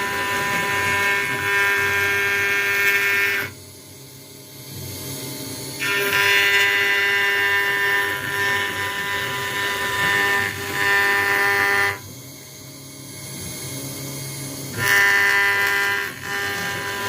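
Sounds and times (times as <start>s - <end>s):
bit cutting acrylic sheet: 0.0s - 3.6s, 5.8s - 12.0s, 14.7s - 17.0s
router spindle whining: 0.0s - 3.6s, 5.8s - 12.1s, 14.7s - 17.0s.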